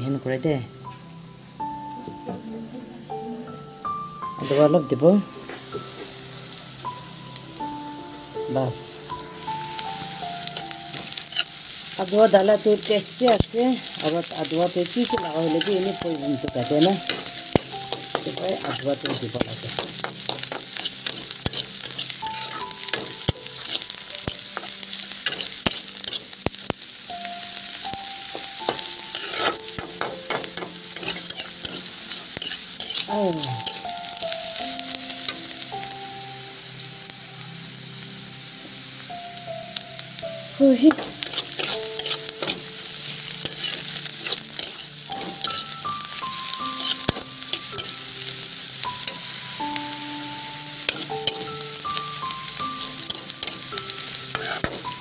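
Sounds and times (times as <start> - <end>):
oil sizzling in a wok: 0.0 - 55.0
spatula scraping a pan: 10.6 - 11.5, 12.9 - 26.6, 28.4 - 33.8, 40.9 - 48.0, 52.8 - 55.0.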